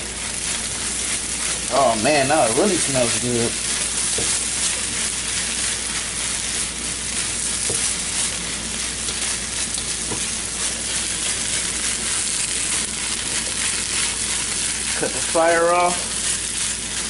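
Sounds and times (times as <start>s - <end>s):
rice sizzling in a wok: 0.0s - 17.0s
wooden spatula scraping a wok: 0.3s - 17.0s
spatula knocking on wok: 4.1s - 4.4s, 7.6s - 8.0s.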